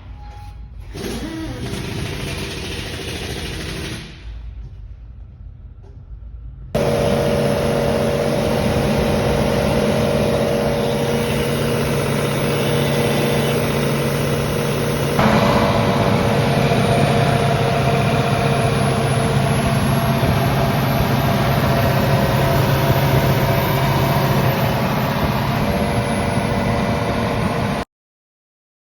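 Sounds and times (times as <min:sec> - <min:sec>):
diesel excavator engine running: 0:06.7 - 0:27.9.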